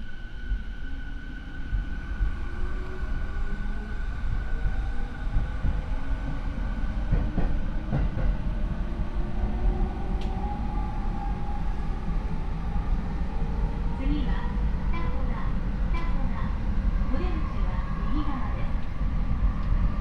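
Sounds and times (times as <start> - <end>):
train rumble: 0.0 - 20.0
rail joint clicks: 7.0 - 8.5, 10.1 - 10.4, 14.9 - 16.5, 18.2 - 19.9.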